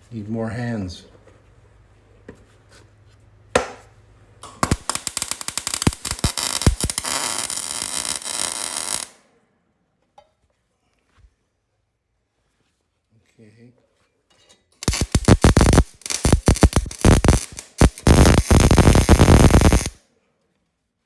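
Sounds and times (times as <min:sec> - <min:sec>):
welder arc crackling: 0:04.4 - 0:09.2, 0:14.8 - 0:20.0.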